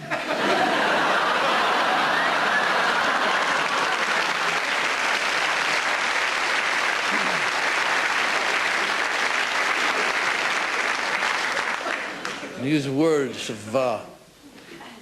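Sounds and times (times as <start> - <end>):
audience applauding: 0.5 - 12.5.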